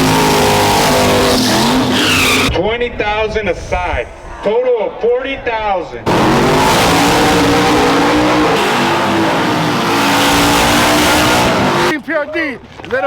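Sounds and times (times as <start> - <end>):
truck engine at full throttle: 0.0 - 2.5, 6.1 - 12.0.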